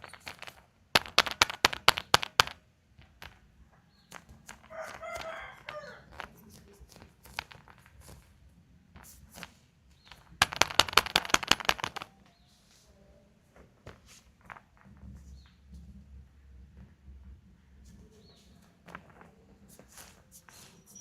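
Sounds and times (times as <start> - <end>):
rapid crackling clicks: 9.3 - 12.1.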